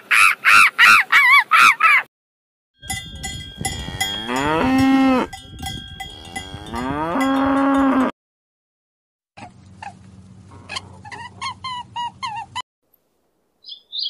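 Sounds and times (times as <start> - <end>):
cow mooing: 3.6 - 8.1.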